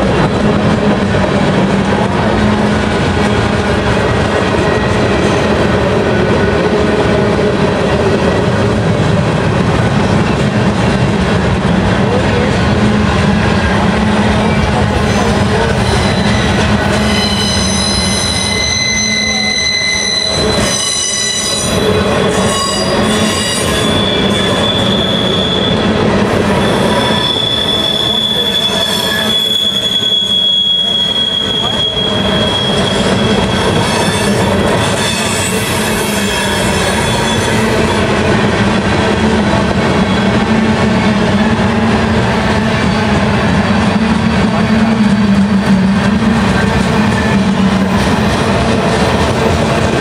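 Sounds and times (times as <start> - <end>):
freight train wheels rumbling: 0.0 - 50.0
wheel squeal: 15.6 - 25.9, 26.5 - 38.0.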